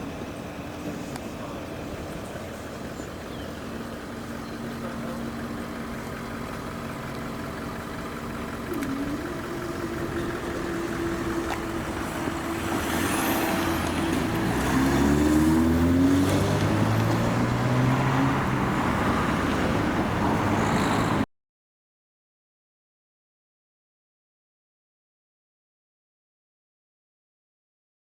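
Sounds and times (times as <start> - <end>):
vehicle engines running: 0.0 - 21.3
engine revving pulling away: 0.9 - 21.2.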